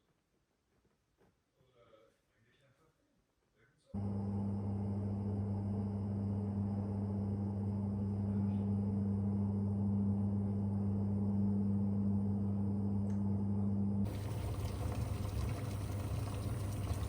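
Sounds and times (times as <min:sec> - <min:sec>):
electric appliance switching on: 0:04.0 - 0:11.5, 0:13.0 - 0:17.0.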